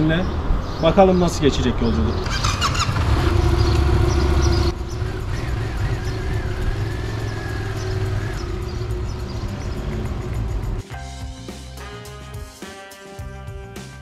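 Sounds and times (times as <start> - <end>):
motorcycle engine humming: 2.1 - 10.8.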